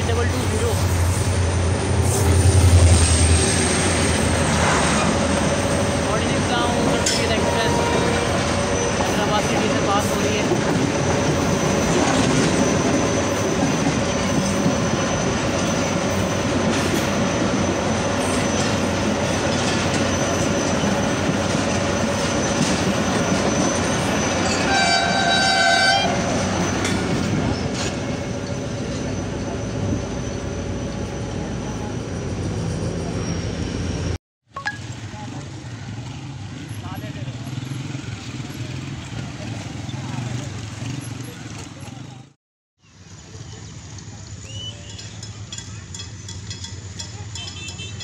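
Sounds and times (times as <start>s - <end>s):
train coaches rumbling over track: 0.0s - 48.0s
train horn: 7.0s - 8.6s, 24.4s - 26.4s.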